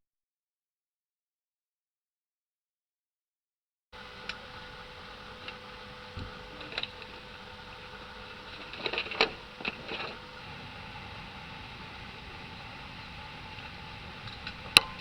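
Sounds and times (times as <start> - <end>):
airliner cabin noise: 4.0 - 15.0.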